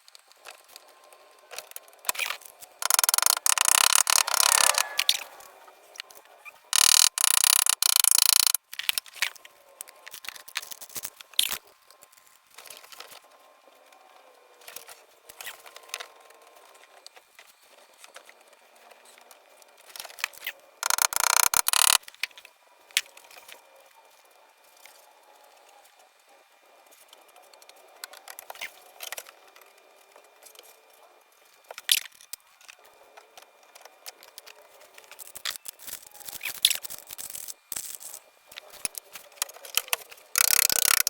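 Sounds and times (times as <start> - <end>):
rough scraping noise: 2.8 - 5.9
metal tools clicking on sheet metal: 6.8 - 8.6, 40.4 - 41.0.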